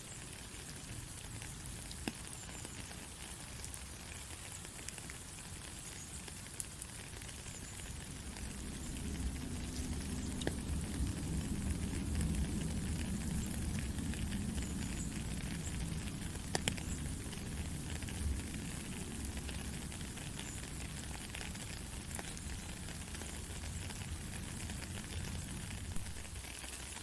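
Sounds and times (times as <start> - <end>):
heavy rain falling: 0.1 - 27.0
sharp raindrop hits: 24.6 - 27.0.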